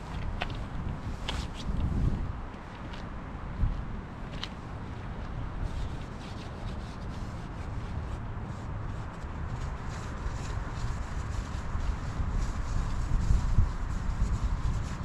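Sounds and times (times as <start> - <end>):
wind rumbling on microphone: 0.0 - 15.0
hand sanding strokes: 5.6 - 15.0.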